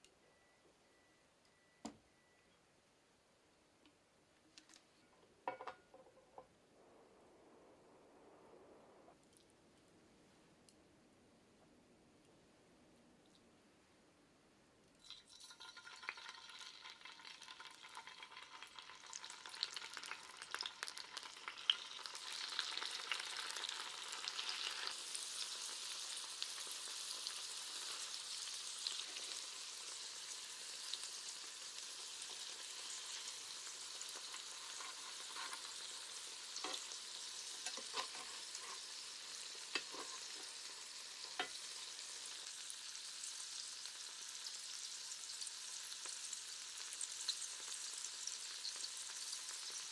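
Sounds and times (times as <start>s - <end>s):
tofu sizzling in a pan: 15.0s - 49.9s.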